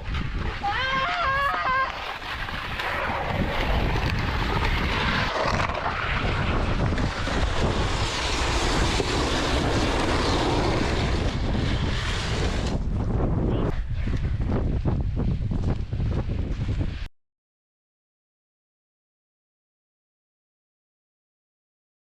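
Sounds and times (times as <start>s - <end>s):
wind buffeting microphone: 0.0s - 17.1s.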